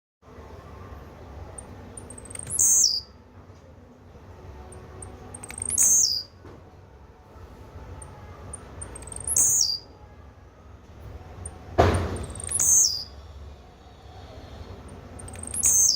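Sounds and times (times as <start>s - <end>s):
bird calling: 2.2s - 3.1s, 5.5s - 6.3s, 9.0s - 9.9s, 12.2s - 13.2s, 15.3s - 15.9s.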